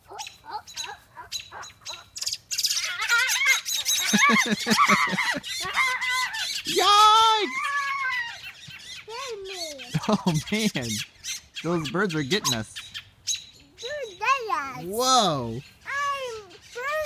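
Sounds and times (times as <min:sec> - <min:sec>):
songbirds alarm-calling and squawking: 0:00.0 - 0:17.0.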